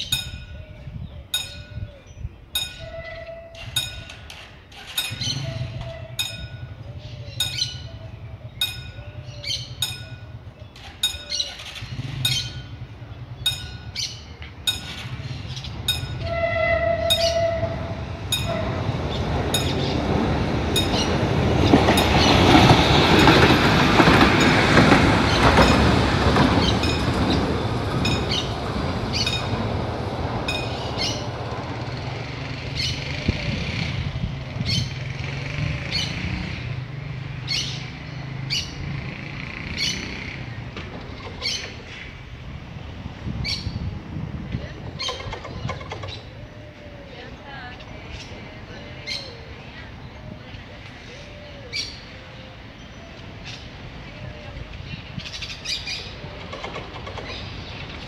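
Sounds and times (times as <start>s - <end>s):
level-crossing warning bell ringing: 0.0s - 32.5s
light-rail car running noise: 0.0s - 58.0s
train horn blast: 2.8s - 3.7s, 16.2s - 19.2s.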